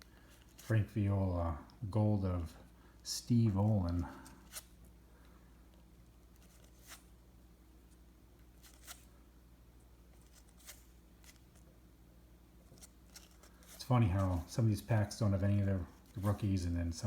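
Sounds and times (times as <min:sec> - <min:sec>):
cards sliding soft clicks: 0:00.0 - 0:00.8, 0:02.9 - 0:07.2, 0:07.8 - 0:09.2, 0:10.0 - 0:11.8, 0:12.6 - 0:14.6
low steady hum: 0:00.0 - 0:17.0.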